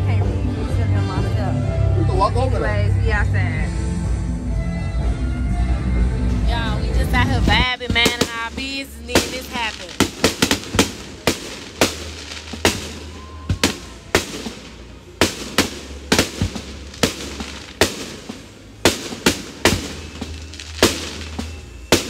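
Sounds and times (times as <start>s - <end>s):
fireworks bangs: 6.5s - 22.0s.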